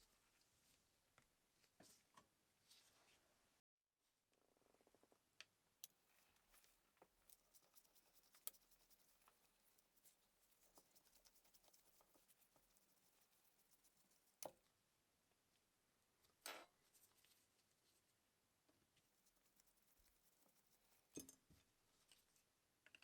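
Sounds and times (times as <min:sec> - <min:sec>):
faint clicks and taps: 0:05.4 - 0:14.6.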